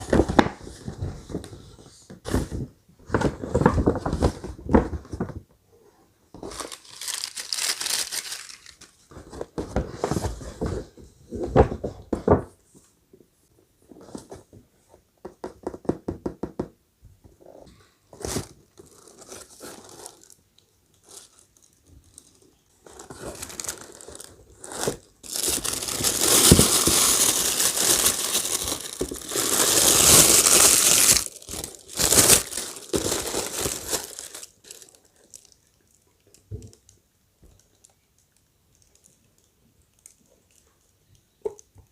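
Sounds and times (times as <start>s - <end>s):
wrapping crinkling and tearing: 6.4s - 9.0s, 18.4s - 36.3s
packaging rustling and knocks: 23.0s - 34.9s.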